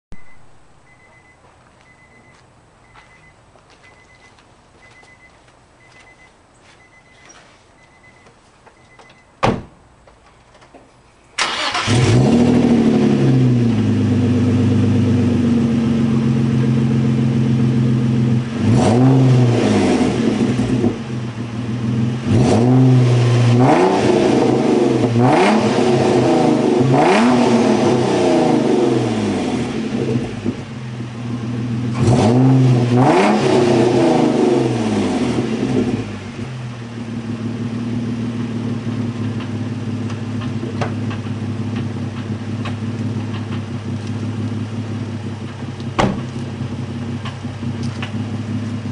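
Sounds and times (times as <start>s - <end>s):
car engine starting and idling: 0.1s - 48.9s
engine throttle blips: 11.4s - 48.9s.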